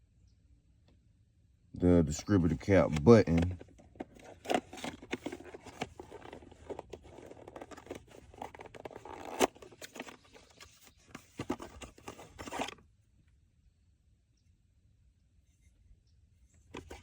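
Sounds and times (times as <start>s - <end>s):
clicks and scrapes: 2.7s - 12.8s, 16.7s - 17.0s
packaging crinkling and rustling: 2.7s - 12.8s.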